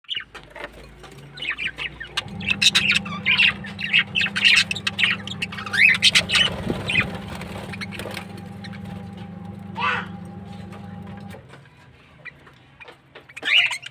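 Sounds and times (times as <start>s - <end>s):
small birds chattering: 0.0s - 13.9s
steady low hum: 1.6s - 11.5s.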